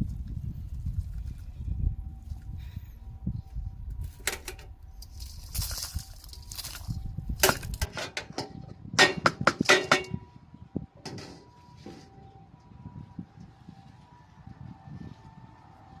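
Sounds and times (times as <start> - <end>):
sharp knocks and scrapes: 11.0 - 12.2.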